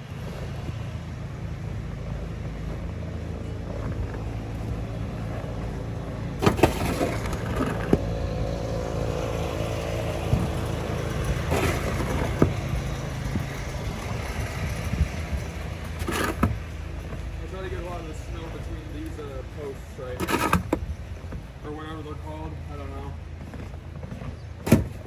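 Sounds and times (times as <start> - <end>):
steady low hum: 0.0 - 25.0
snow shovel scraping and knocking: 6.4 - 8.3, 9.4 - 25.0.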